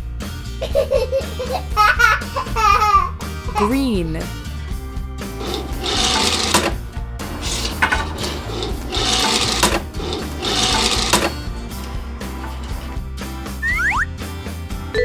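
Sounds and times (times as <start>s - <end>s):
background music: 0.0s - 15.0s
rasping mechanical bursts: 5.4s - 13.9s.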